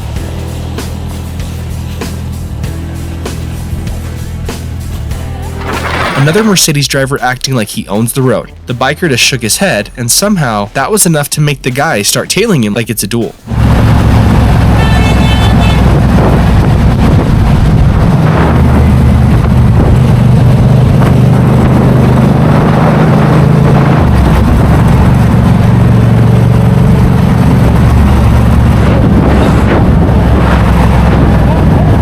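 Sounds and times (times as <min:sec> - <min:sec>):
motorcycle engine droning: 0:13.5 - 0:32.0.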